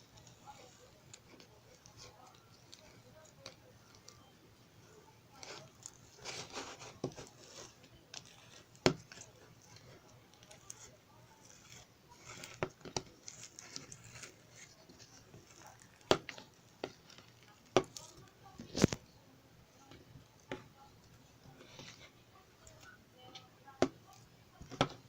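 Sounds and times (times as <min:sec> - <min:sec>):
soft rustling and crinkling: 0:00.0 - 0:25.0.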